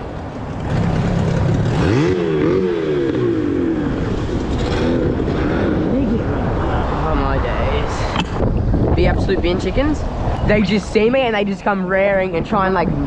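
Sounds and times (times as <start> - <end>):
wind: 0.0 - 13.0
motorboat engines revving: 0.6 - 5.0.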